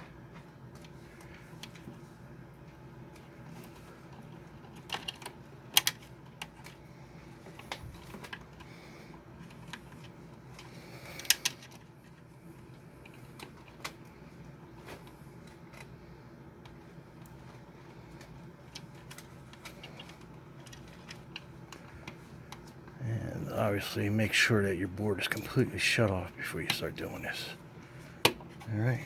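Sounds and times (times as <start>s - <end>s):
small parts clicking and tapping: 3.1s - 14.1s, 16.6s - 22.8s.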